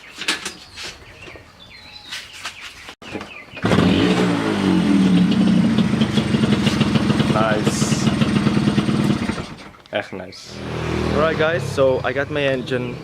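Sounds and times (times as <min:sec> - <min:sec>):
moped engine starting and idling: 0:03.5 - 0:09.8.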